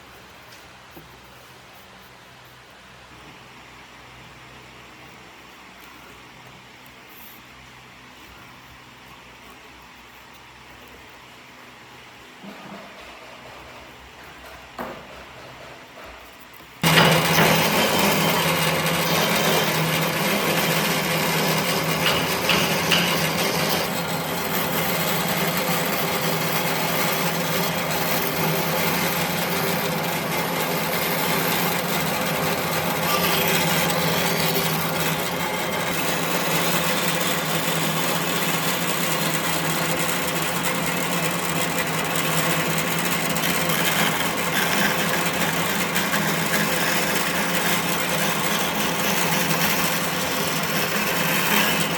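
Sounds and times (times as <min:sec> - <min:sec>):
power tool cutting wood: 0:16.8 - 0:51.9.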